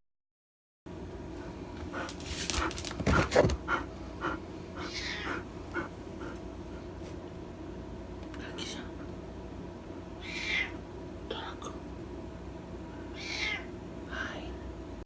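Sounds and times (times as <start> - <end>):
dog whimpering: 4.8 - 5.9.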